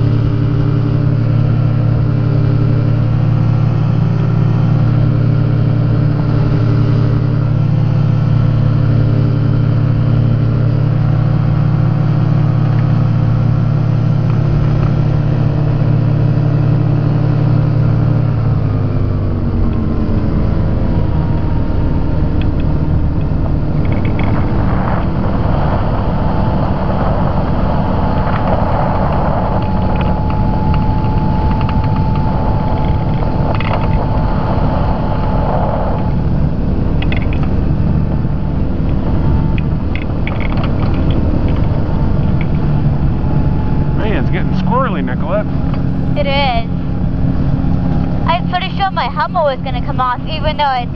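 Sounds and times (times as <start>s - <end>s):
ultralight aircraft engine: 0.0s - 50.9s
wind rush: 0.0s - 50.9s
airframe rattles and clicks: 22.3s - 25.2s, 28.3s - 34.2s, 36.9s - 37.9s, 38.9s - 42.6s.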